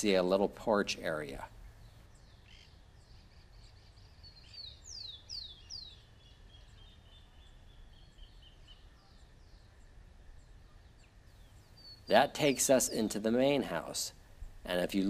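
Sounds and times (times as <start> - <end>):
bird whistling: 2.4 - 7.3
high repeated bird notes: 11.4 - 14.0.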